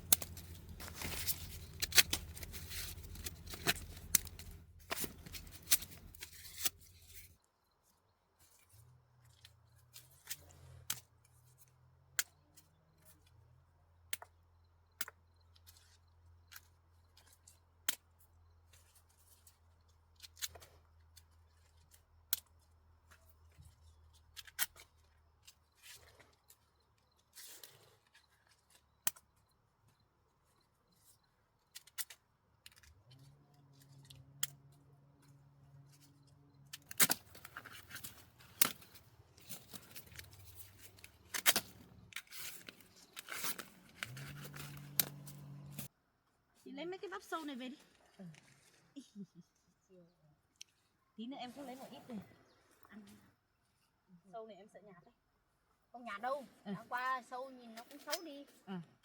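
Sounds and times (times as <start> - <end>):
corn ears snapping off stalks: 0.0 - 6.8, 36.7 - 45.9.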